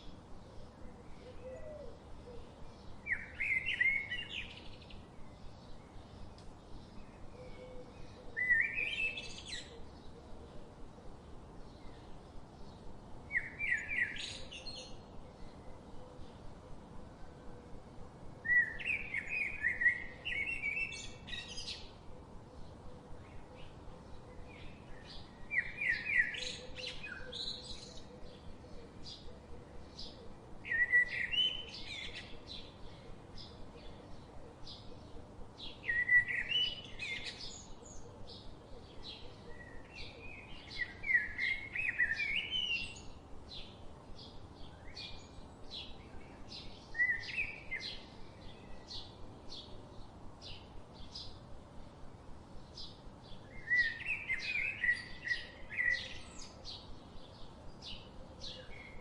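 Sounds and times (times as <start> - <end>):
bird warbling song: 0.0 - 10.6, 11.2 - 16.4, 18.4 - 51.4, 52.6 - 59.0
songbirds chirping: 0.0 - 59.0.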